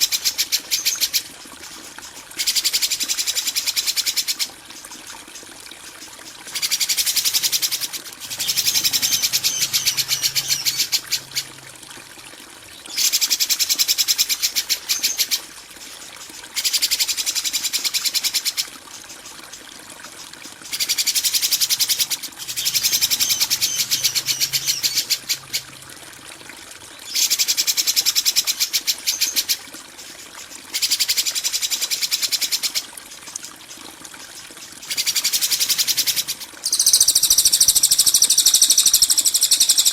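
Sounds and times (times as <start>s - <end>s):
bird chattering trills: 6.6s - 11.6s, 21.5s - 25.7s, 35.6s - 39.9s.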